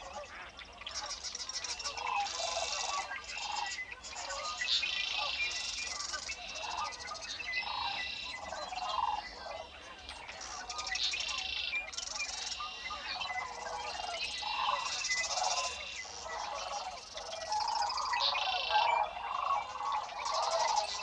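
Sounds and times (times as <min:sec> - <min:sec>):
birds buzzy trills: 0:10.3 - 0:21.0.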